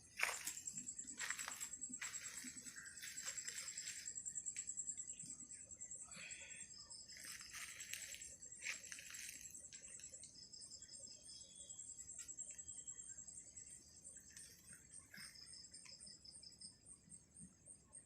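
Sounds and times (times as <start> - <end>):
high cricket trill: 0.0 - 18.0
lower cricket trill: 0.0 - 18.0.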